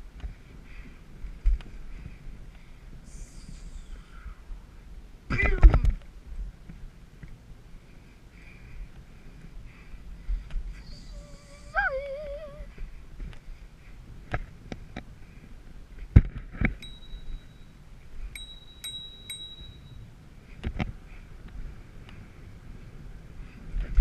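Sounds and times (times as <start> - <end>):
wavering pitched call: 10.8 - 12.7
thin high tone: 16.8 - 20.1.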